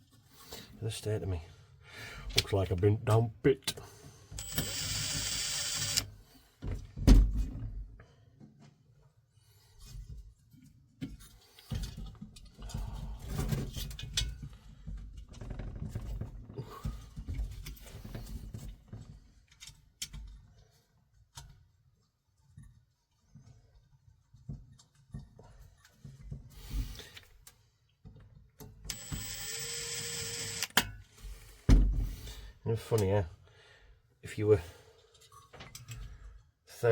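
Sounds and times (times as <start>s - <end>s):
small clicks: 4.4s - 6.1s.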